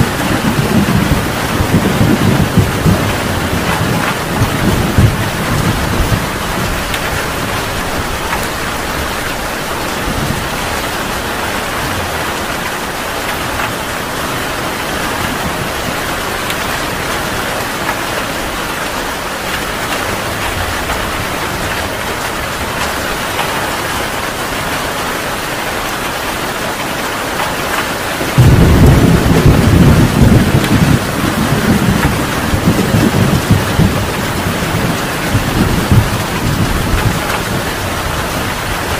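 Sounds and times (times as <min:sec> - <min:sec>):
thunder rumble: 0:00.0 - 0:17.7, 0:28.3 - 0:38.9
heavy rain hissing: 0:00.0 - 0:38.9.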